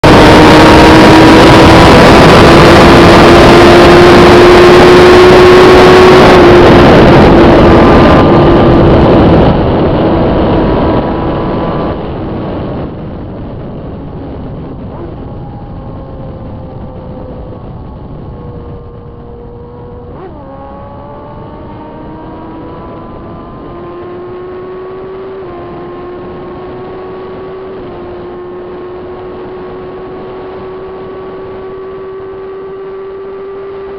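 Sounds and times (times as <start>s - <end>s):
gear changes: 0.0s - 33.9s
motorcycle engine: 0.0s - 33.9s
wind noise: 0.0s - 33.9s.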